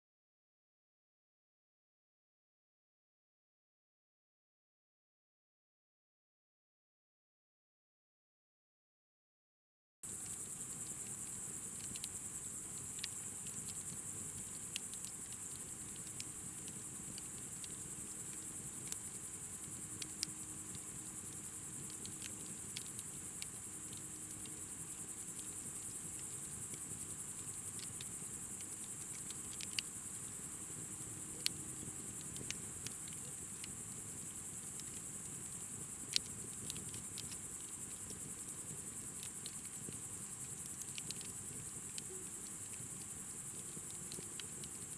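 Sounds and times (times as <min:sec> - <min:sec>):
crickets chirring: 0:10.0 - 0:44.9
bonfire crackling: 0:10.1 - 0:44.9.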